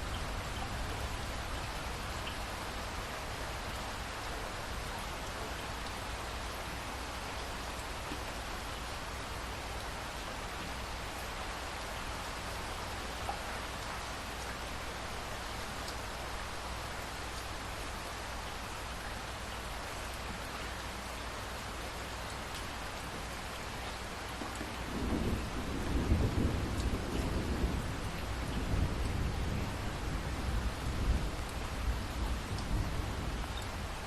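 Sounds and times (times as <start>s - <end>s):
steady rain falling: 0.0s - 34.0s
low roll of thunder: 24.8s - 33.6s.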